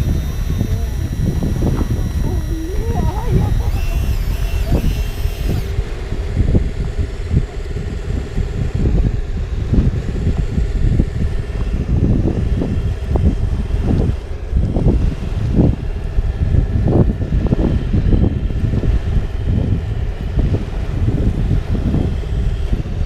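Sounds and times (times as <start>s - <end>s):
toy motor whining: 0.0s - 6.0s
wind buffeting microphone: 0.0s - 23.0s.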